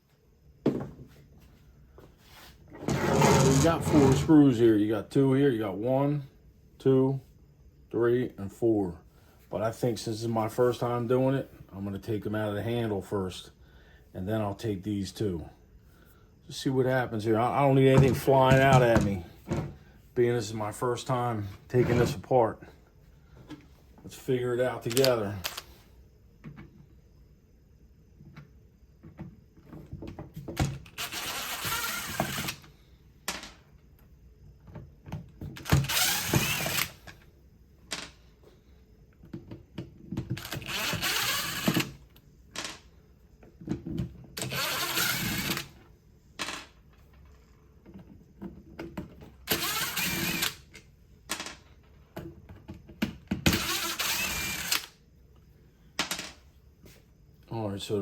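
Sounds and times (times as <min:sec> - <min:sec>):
small clicks and handling noises: 0:24.9 - 0:25.7
cordless driver motor running: 0:31.0 - 0:32.6, 0:35.7 - 0:37.0, 0:44.4 - 0:45.6, 0:49.5 - 0:50.6, 0:53.6 - 0:54.9.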